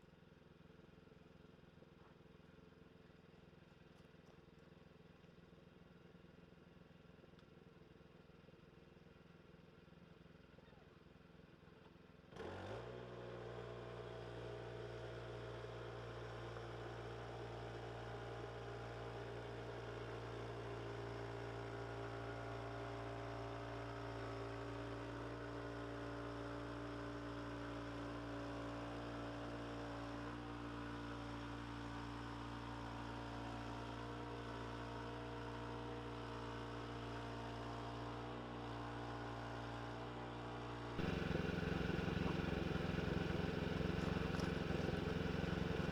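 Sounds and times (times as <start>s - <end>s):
machine motor humming: 41.0s - 45.9s.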